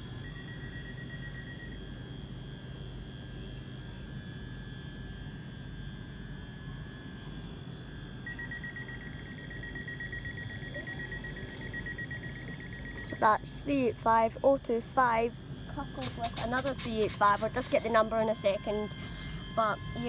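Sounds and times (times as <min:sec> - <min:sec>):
electric train humming: 0:00.0 - 0:03.2, 0:04.2 - 0:20.0
door warning beeping: 0:08.2 - 0:13.9, 0:15.7 - 0:20.0.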